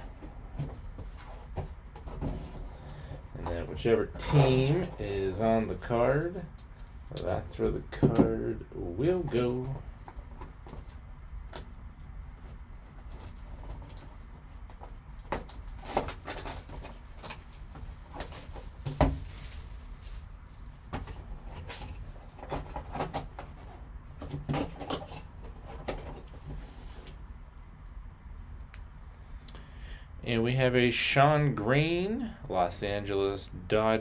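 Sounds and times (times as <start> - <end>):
packaging clicks and rustles: 9.2 - 23.5.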